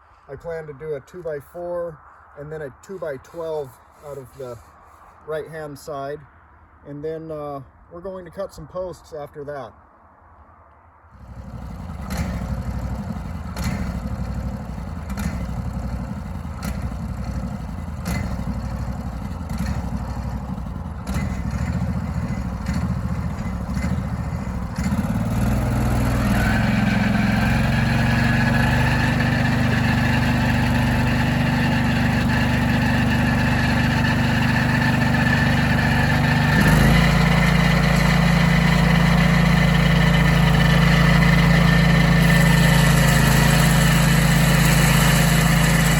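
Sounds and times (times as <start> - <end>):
sawmill engine running: 11.2 - 45.9.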